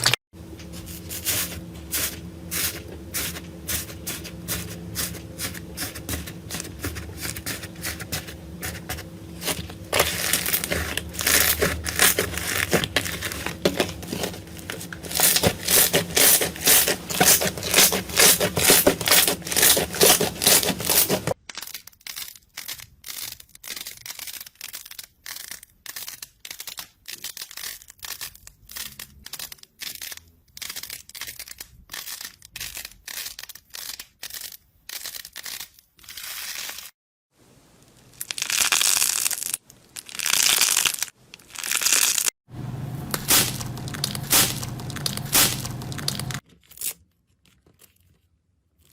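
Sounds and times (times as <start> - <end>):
slime crackling and popping: 37.9 - 42.3.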